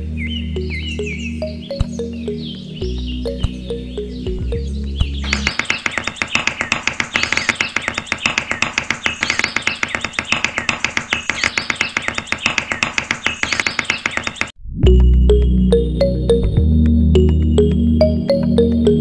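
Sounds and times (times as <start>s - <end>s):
birds chirping: 0.0s - 14.6s
small hammer tapping sticks: 5.2s - 14.5s.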